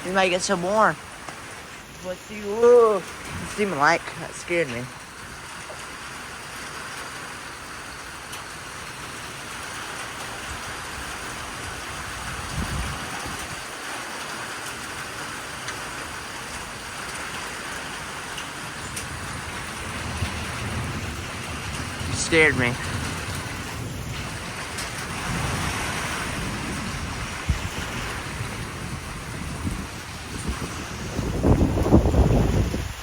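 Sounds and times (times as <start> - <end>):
wind buffeting the microphone: 0.0 - 5.7, 10.3 - 13.9, 18.4 - 33.0
strong storm wind: 0.0 - 6.9, 7.9 - 33.0
rain falling: 0.0 - 33.0.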